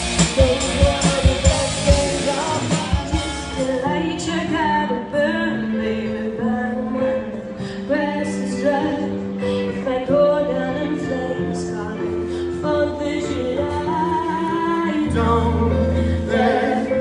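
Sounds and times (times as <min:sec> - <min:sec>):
live band music: 0:00.0 - 0:04.7
woman singing: 0:00.0 - 0:17.0.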